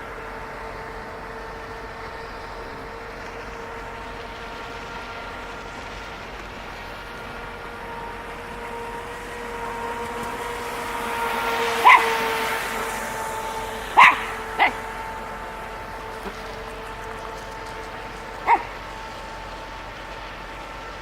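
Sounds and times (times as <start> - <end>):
electric motor whine: 0.0 - 21.0
dog barking: 11.8 - 12.3, 14.0 - 15.0, 18.4 - 18.8.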